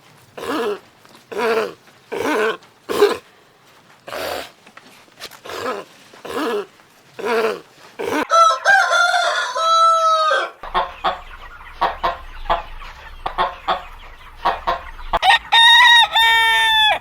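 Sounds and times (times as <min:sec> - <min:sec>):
chickens clucking: 0:00.4 - 0:17.0
rooster crowing: 0:08.2 - 0:11.3, 0:14.4 - 0:17.0.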